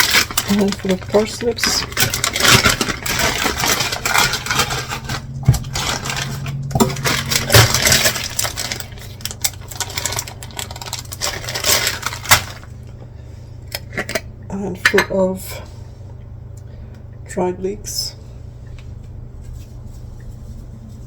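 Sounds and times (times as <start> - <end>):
frozen vegetable pieces clattering: 0.0 - 12.8
steady low hum: 0.0 - 21.0.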